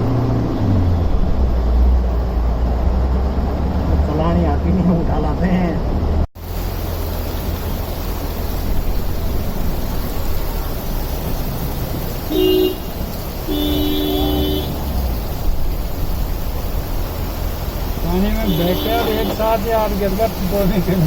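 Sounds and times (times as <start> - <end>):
heavy rain: 0.0 - 21.0
traffic noise: 0.0 - 21.0
vehicle horn honking: 12.3 - 12.9, 13.5 - 14.8, 18.4 - 19.6.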